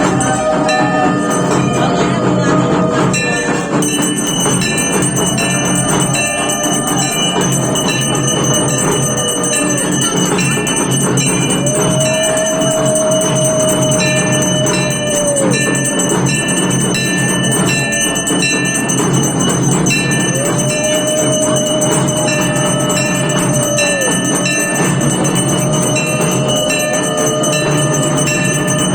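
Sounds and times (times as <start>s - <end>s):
bells ringing: 0.0s - 28.9s
conch shell long note: 4.5s - 18.9s, 20.0s - 28.9s.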